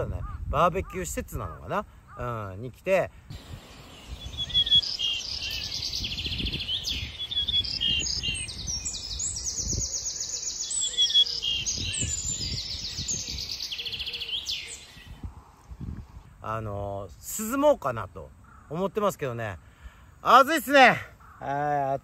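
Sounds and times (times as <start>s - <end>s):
songbird chirps and trills: 0.0s - 22.0s
low rumble of microphone noise: 3.2s - 17.2s.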